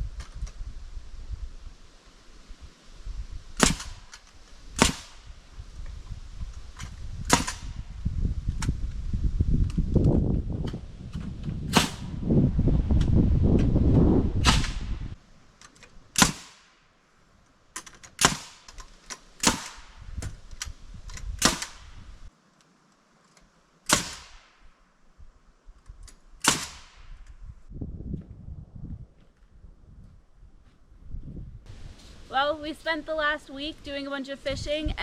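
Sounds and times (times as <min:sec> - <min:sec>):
low rumbling noise: 0:00.0 - 0:15.4.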